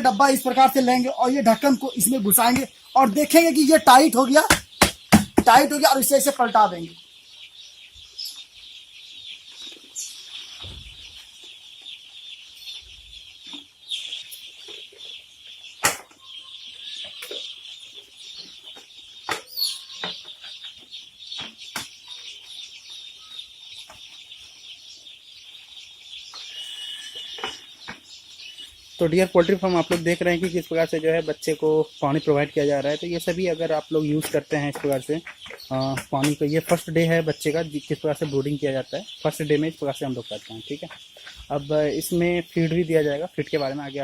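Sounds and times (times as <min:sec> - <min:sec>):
chicks peeping: 0:00.0 - 0:44.0
sharp knocks and clatters: 0:04.4 - 0:05.7.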